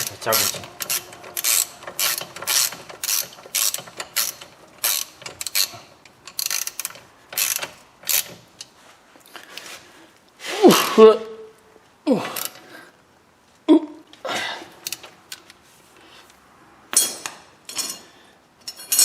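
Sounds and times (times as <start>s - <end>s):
ratchet wrench clicking: 0.0s - 8.4s.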